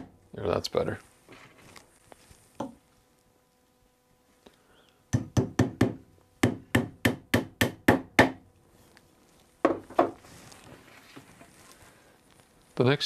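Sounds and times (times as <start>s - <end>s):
hammer tapping tacks into wood: 5.1s - 8.4s.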